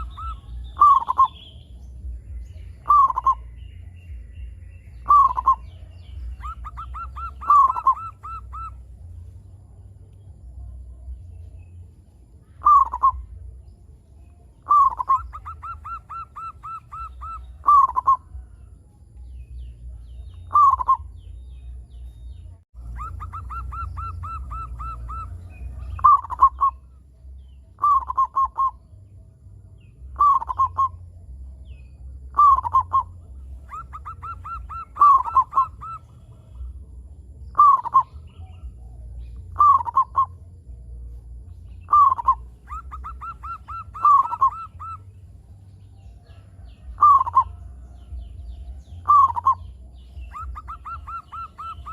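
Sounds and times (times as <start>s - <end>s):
doves cooing: 0.0s - 1.5s, 2.8s - 3.5s, 5.0s - 9.4s, 12.6s - 13.4s, 14.6s - 18.5s, 20.4s - 21.1s, 22.8s - 27.0s, 27.8s - 28.8s, 30.1s - 31.1s, 32.2s - 40.4s, 41.8s - 45.2s, 46.1s - 51.9s
low steady rumble: 0.0s - 51.9s.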